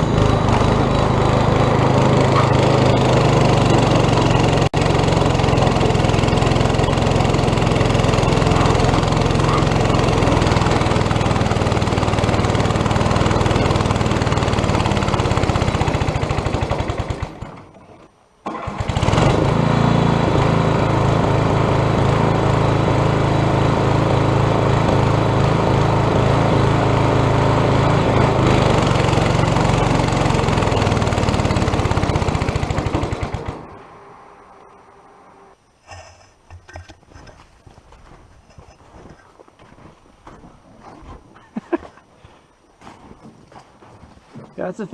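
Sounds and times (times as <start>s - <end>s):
small engine running: 0.0s - 35.6s.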